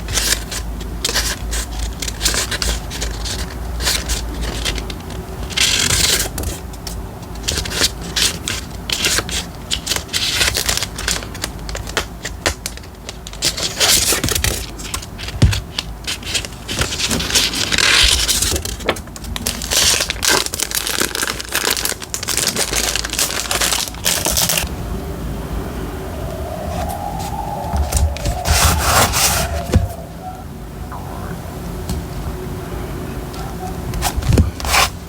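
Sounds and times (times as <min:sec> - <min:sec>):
paper crinkling and rustling: 0:07.4 - 0:24.6.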